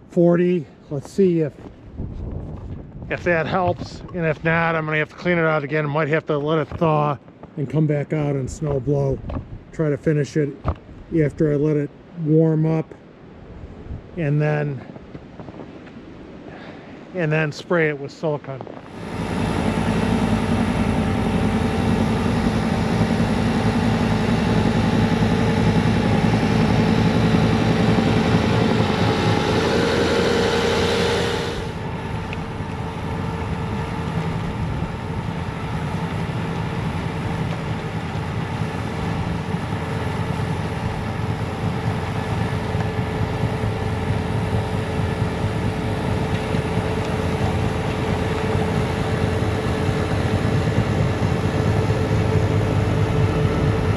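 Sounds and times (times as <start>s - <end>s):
diesel engine running: 18.6s - 53.9s
snowblower loud hiss: 18.8s - 53.9s.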